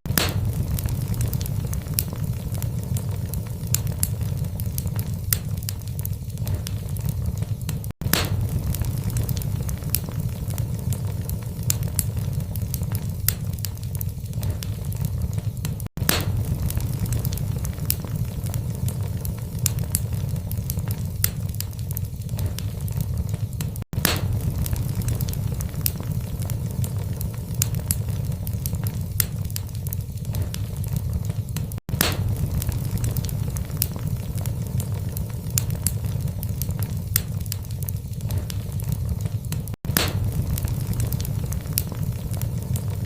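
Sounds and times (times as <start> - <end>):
fire crackling and popping: 0.0 - 43.0
fire rumbling: 0.0 - 43.0.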